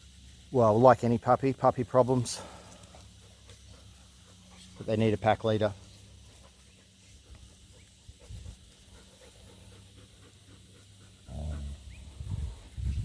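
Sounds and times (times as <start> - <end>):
faint steady hum: 0.0 - 13.0
dog panting: 2.4 - 12.8.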